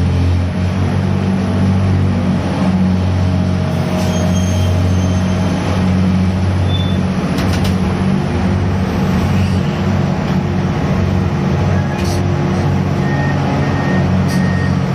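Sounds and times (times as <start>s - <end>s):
diesel machinery running: 0.0s - 14.9s
beeping alarm: 13.0s - 14.9s.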